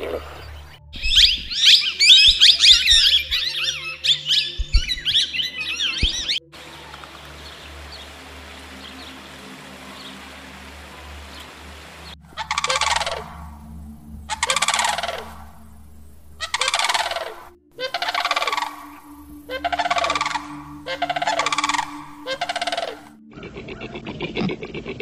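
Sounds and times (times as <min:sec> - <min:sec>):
bird calls with pulsing rattle: 0:00.0 - 0:13.5, 0:14.3 - 0:15.5, 0:16.3 - 0:24.4
background hiss: 0:06.6 - 0:23.1.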